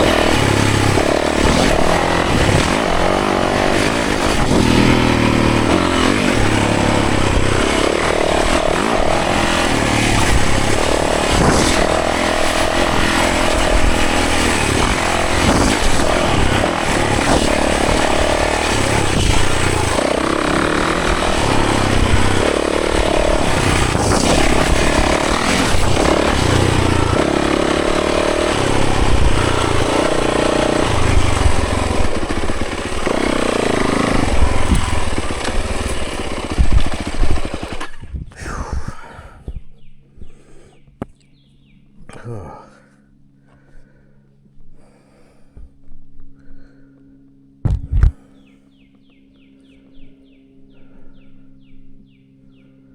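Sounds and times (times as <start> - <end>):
dirt bike engine revving: 0.0 - 40.4.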